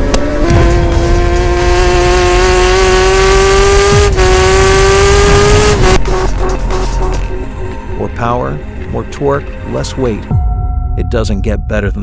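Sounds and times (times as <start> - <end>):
motorcycle engine revving high: 0.0 - 6.4.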